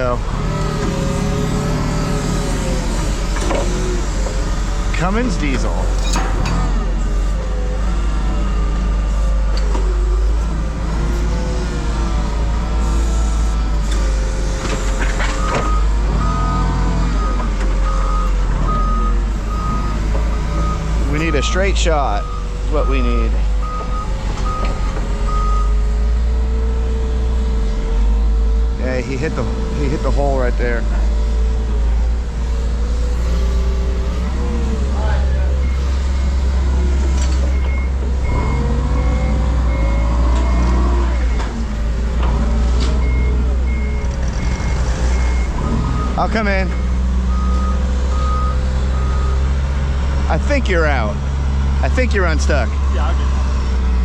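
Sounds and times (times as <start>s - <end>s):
diesel engine under load: 0.0s - 54.0s
reversing alarm beeping: 1.4s - 26.0s, 33.1s - 49.6s.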